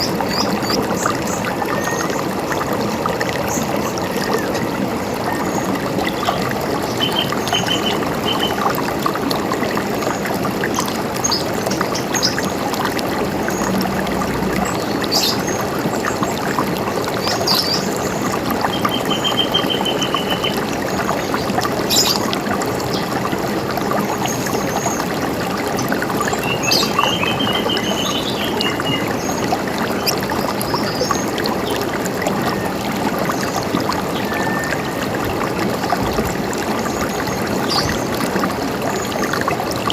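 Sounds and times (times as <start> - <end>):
river water running over rocks: 0.0 - 39.9
small birds trilling and chirping: 21.4 - 22.2, 26.3 - 31.8.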